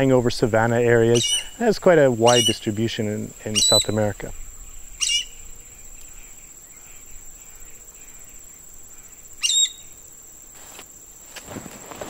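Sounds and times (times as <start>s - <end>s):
faint distant bird chirps: 0.0s - 10.4s
high-pitched insect buzz: 0.0s - 12.0s
sharp falling bird call: 3.5s - 6.4s, 9.4s - 10.0s
footsteps through grass: 10.5s - 12.0s.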